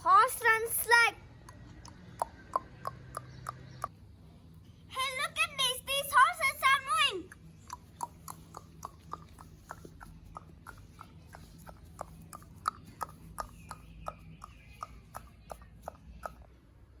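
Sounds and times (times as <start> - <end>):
faint steady hum: 0.0 - 17.0
horse hooves clip-clopping: 7.3 - 16.5.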